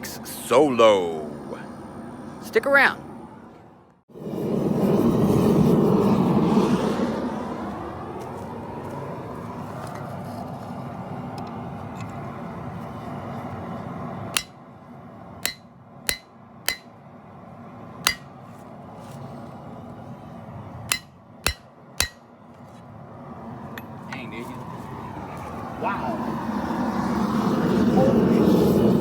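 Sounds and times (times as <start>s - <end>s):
hammer blows on anvil: 14.4s - 14.6s, 15.4s - 17.0s, 18.1s - 18.3s, 20.9s - 22.3s.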